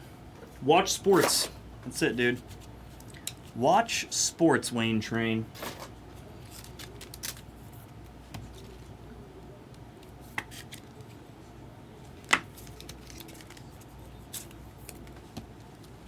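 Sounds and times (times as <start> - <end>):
cards and packaging rustling: 1.0 - 1.6, 5.6 - 8.9, 12.0 - 16.0.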